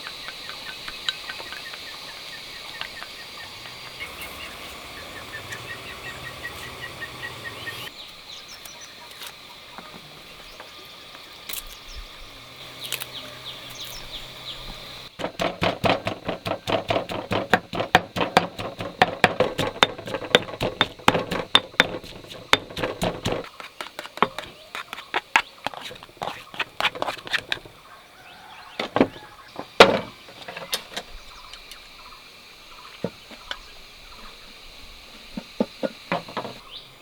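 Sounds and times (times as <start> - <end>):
birds singing: 0.0 - 15.2, 18.6 - 37.0
insect drone: 0.0 - 37.0
rapid chopping knocks: 15.2 - 24.5.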